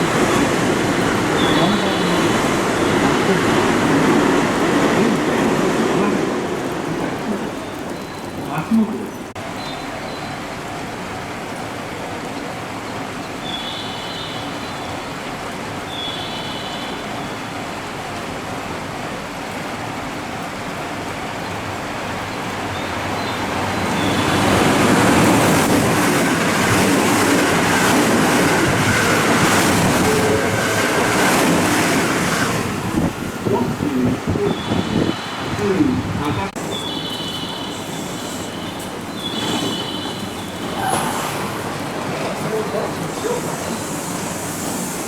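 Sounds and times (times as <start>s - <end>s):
train passing: 0.0s - 45.0s
wheels clacking over rail joints: 18.1s - 45.0s.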